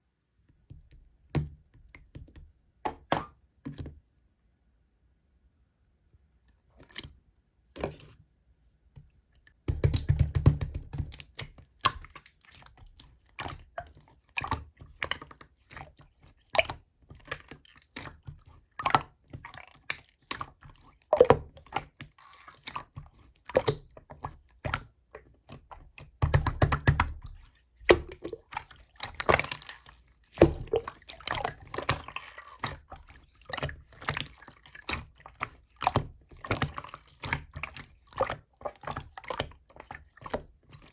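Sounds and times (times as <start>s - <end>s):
slime squishing: 9.6s - 40.9s.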